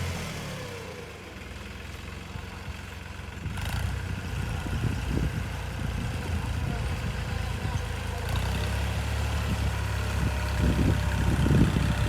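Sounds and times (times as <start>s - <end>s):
vehicle engine humming: 6.1s - 12.0s.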